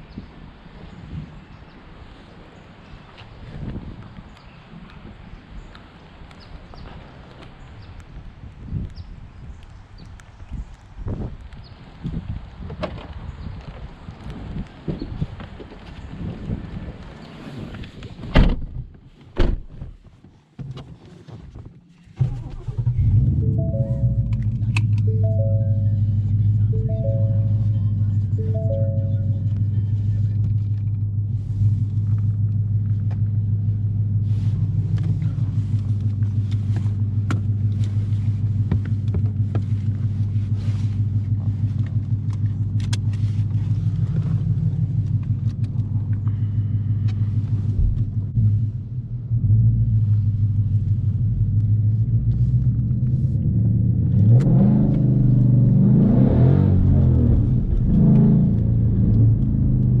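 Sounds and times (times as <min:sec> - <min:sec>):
car engine idling and revving: 0:21.4 - 1:00.0.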